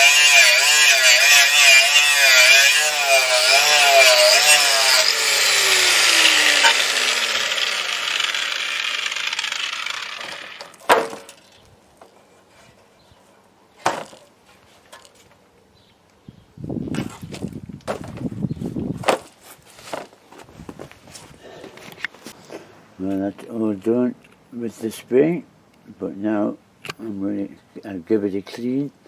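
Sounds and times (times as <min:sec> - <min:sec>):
power tool whirring: 0:00.0 - 0:11.4
sharp knocks: 0:10.2 - 0:11.4.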